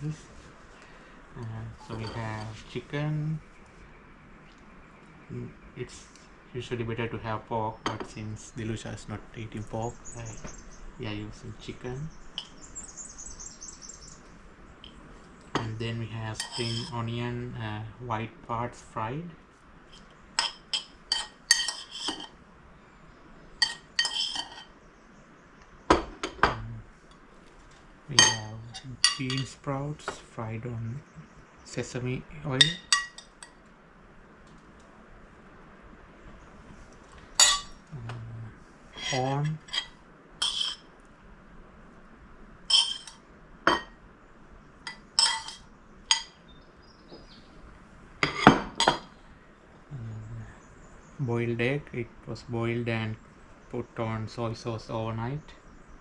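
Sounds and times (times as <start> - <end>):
metal utensils clinking on bowls: 1.8 - 2.6, 15.5 - 17.1, 20.4 - 22.4, 23.6 - 24.7, 28.1 - 30.2, 32.6 - 33.6, 37.4 - 37.8, 39.0 - 40.9, 42.7 - 43.9, 44.9 - 46.4.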